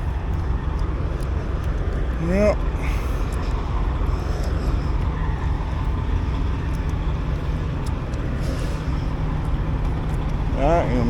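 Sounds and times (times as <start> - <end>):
diesel truck engine droning: 0.0 - 11.0
road and wind noise hiss: 0.0 - 11.0.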